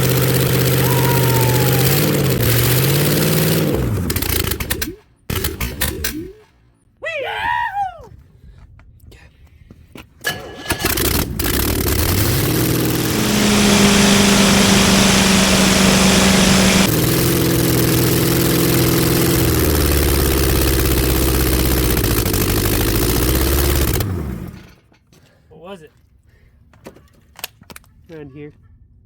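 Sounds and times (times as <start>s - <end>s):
engine starting and revving: 0.0s - 6.4s, 10.2s - 24.8s.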